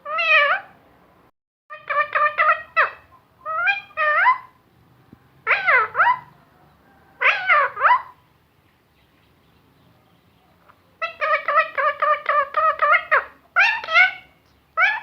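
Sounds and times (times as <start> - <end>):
parrot talking: 0.0 - 0.8, 1.7 - 4.6, 5.4 - 6.4, 7.2 - 8.2, 11.0 - 15.0.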